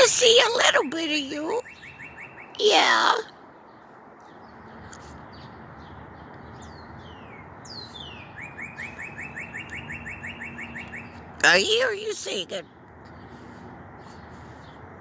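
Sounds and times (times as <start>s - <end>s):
songbirds singing: 0.0s - 15.0s
rapid bird trill: 7.7s - 12.5s.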